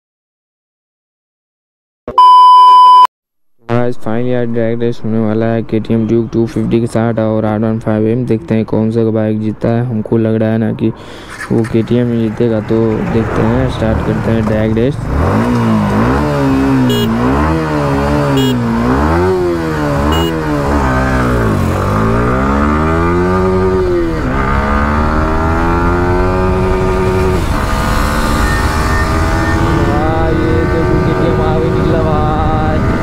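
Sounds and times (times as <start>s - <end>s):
motorcycle engine revving: 13.0s - 33.0s.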